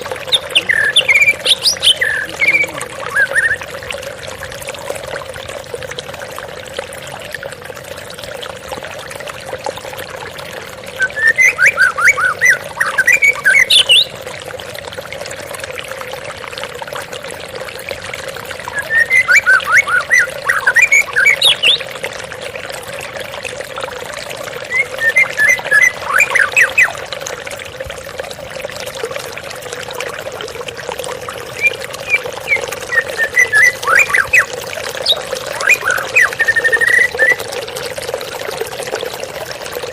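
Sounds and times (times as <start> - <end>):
songbird singing rapid varied notes: 0.0 - 3.6, 11.1 - 14.1, 18.7 - 21.8, 31.5 - 37.4
waterfall splashing: 0.0 - 3.6.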